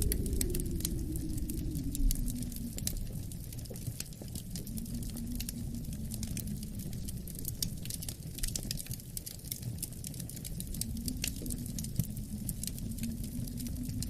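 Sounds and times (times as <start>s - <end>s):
low rumble of wind: 0.0s - 14.0s
wood fire crackling: 0.0s - 14.0s.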